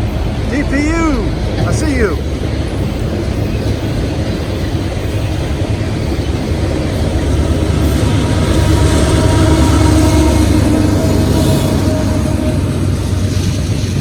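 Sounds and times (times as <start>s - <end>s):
freight train rumbling by: 0.0s - 14.0s.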